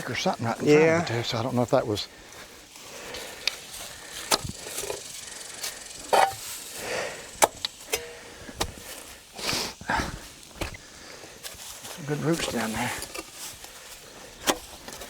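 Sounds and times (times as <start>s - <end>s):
shovel scraping dirt: 3.5s - 15.0s.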